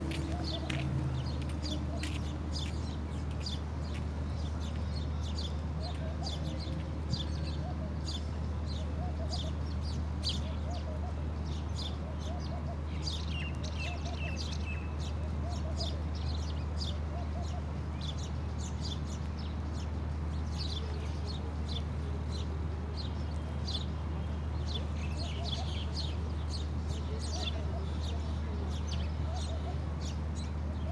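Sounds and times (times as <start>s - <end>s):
bird clucking calls: 0.0s - 2.8s
birds chirping: 0.0s - 6.8s.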